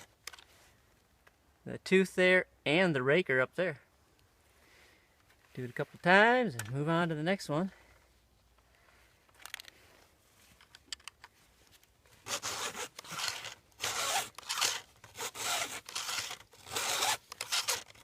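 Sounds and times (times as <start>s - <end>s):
file rasping on chainsaw chain: 12.3s - 18.0s.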